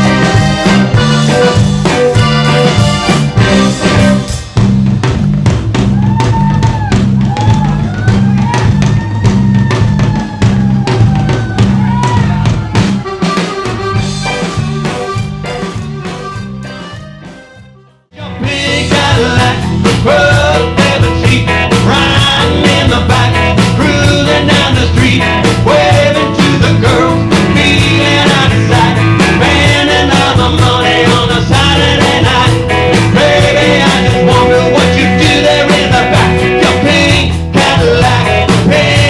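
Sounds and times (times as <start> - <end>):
electric guitar: 0.0 - 5.2, 6.0 - 17.6, 18.2 - 39.0
steady drum beat: 0.0 - 17.5, 18.4 - 39.0
person singing: 18.1 - 39.0.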